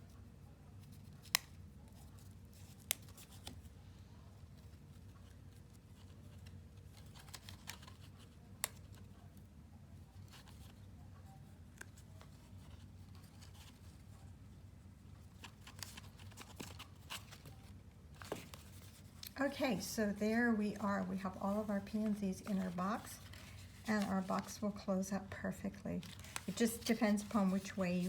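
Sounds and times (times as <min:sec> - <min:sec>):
low room hum: 0:00.0 - 0:28.0
paper rustling and tapping: 0:15.4 - 0:19.8, 0:26.0 - 0:28.0.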